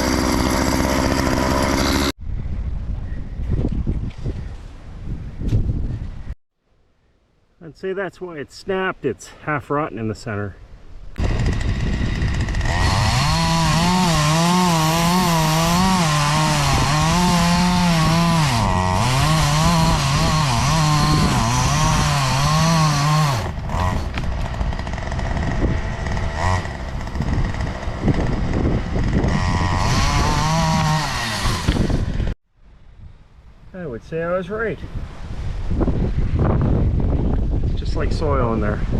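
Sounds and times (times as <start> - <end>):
chainsaw cutting tree trunk: 0.0 - 2.2, 11.2 - 32.4.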